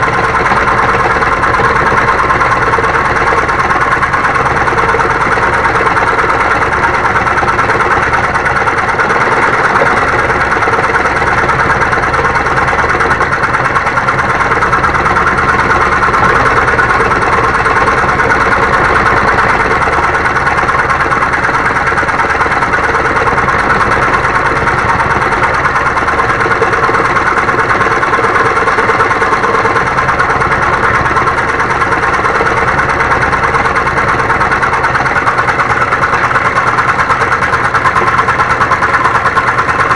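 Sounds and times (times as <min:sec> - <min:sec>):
scroll saw cutting wood: 0:12.7 - 0:20.1.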